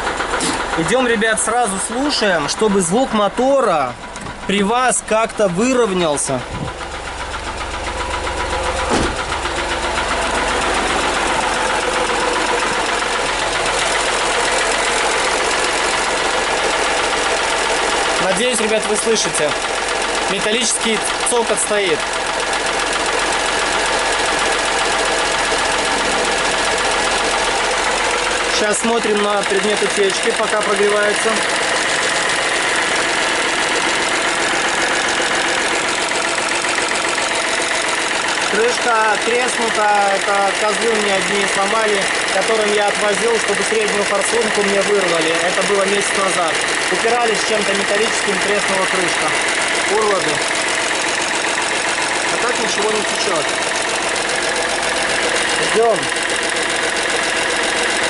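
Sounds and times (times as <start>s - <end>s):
diesel engine idling with clatter: 0.0s - 58.0s.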